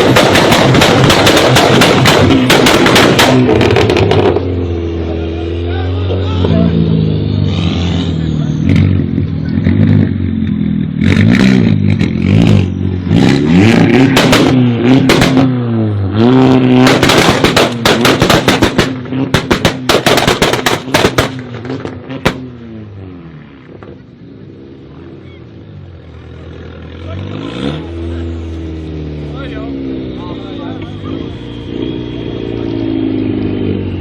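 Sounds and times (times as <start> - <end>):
exhaust pops and crackles: 0.0 - 4.4, 13.7 - 15.6, 16.2 - 22.6, 23.6 - 24.1
engine revving: 0.0 - 34.0.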